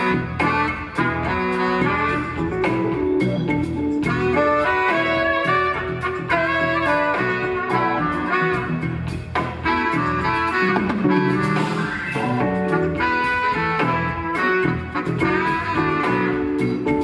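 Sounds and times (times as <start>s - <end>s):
jazz fusion band playing: 0.0s - 17.0s.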